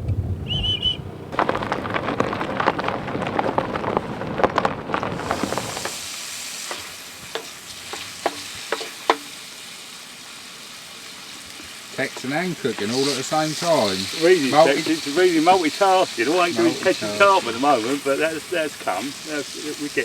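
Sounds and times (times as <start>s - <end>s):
high warbling chirp: 0.0s - 1.1s
food sizzling in a pan: 5.1s - 20.0s.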